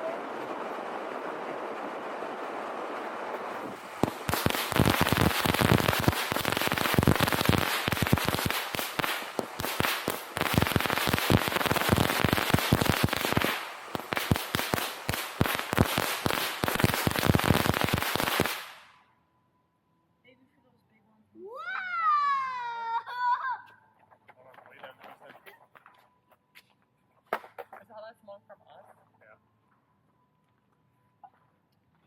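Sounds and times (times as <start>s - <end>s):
fireworks bangs and crackles: 0.0s - 18.9s.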